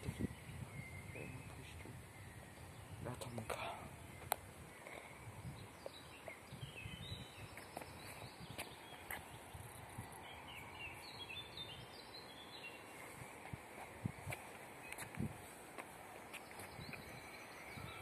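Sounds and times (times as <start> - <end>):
faint bird chirps: 0.0 - 15.3, 16.0 - 18.0
outdoor background noise: 0.0 - 18.0.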